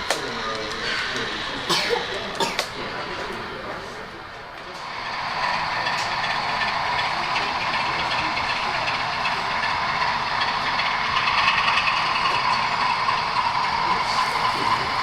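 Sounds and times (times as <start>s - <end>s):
model train whirring and clatter: 0.0s - 15.0s.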